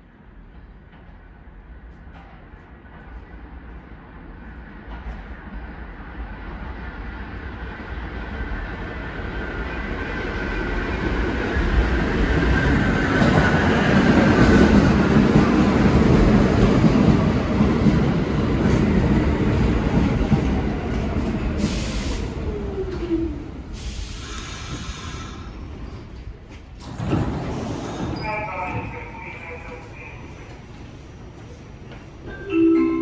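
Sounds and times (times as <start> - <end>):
steel wheels rumbling on rails: 8.5 - 29.0
train whine sliding down: 20.2 - 26.1.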